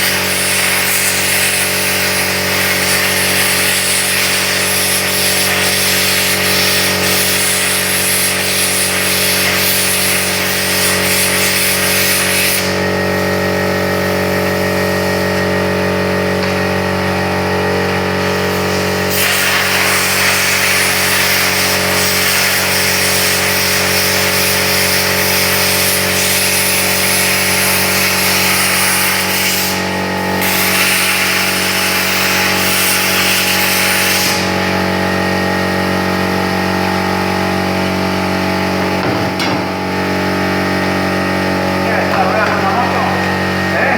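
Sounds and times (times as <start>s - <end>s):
plasma cutter hissing: 0.0s - 13.3s, 18.2s - 37.3s
machine hum: 34.4s - 43.9s.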